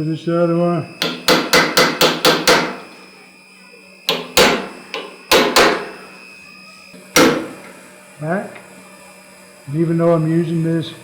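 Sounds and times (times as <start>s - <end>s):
hammer striking punch on steel: 1.0s - 2.9s, 4.1s - 6.1s, 7.1s - 7.7s.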